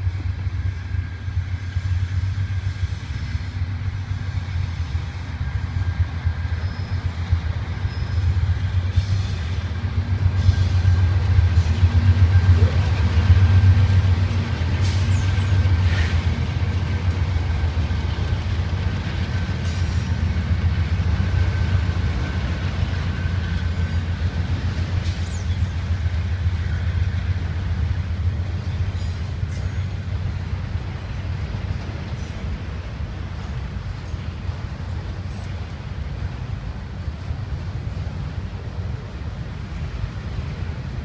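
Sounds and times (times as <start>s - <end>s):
diesel locomotive engine rumble: 0.0s - 41.0s.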